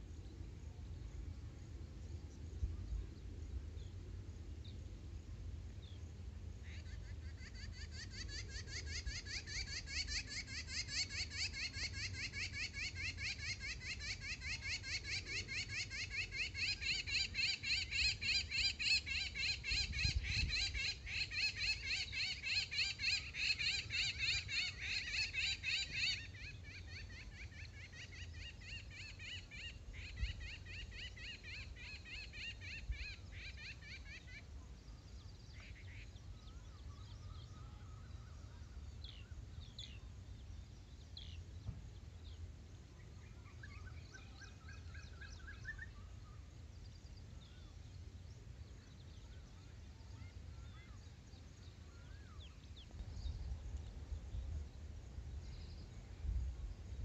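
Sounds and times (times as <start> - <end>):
bird chirps: 43.0 - 54.5.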